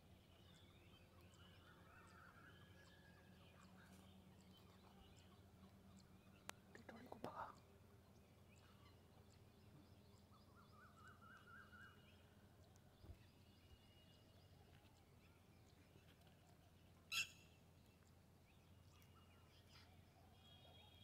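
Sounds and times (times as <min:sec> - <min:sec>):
repeated bird chirps: 0:17.1 - 0:17.4.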